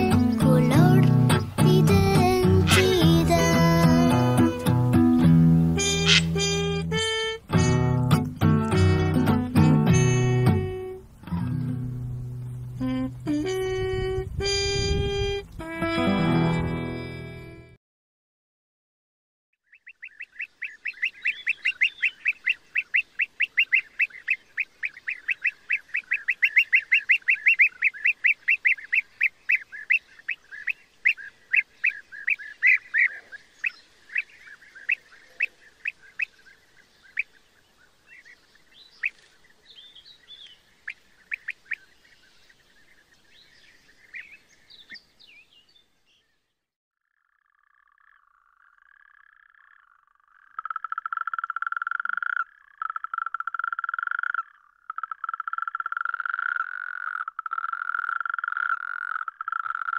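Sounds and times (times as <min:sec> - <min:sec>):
bird calling sharp notes: 0:00.0 - 0:16.2, 0:19.7 - 0:37.4.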